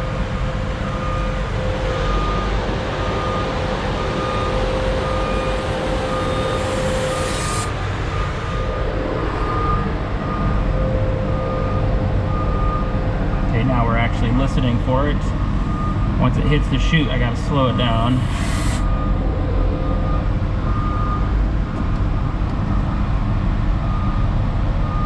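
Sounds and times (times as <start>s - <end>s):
reversing alarm beep: 0.0s - 14.1s, 15.0s - 21.4s
high hiss: 4.0s - 8.0s, 17.8s - 19.0s.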